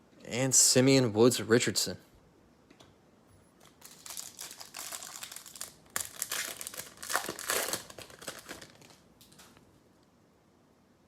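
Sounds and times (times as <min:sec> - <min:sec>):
plastic wrapper tearing and crinkling: 0:03.6 - 0:09.5.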